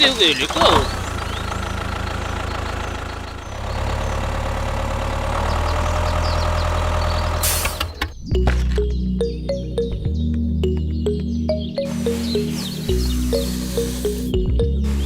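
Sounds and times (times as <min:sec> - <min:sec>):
tractor engine rumbling: 0:00.0 - 0:15.0
short hiss: 0:12.0 - 0:14.3.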